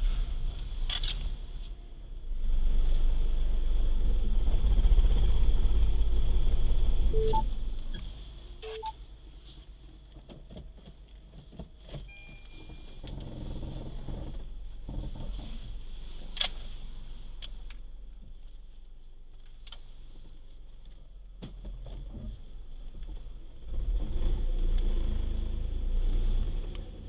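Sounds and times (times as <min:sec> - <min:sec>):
road traffic rumble: 0:00.0 - 0:10.3, 0:12.9 - 0:27.0
short beeps: 0:07.2 - 0:07.5, 0:08.6 - 0:09.0.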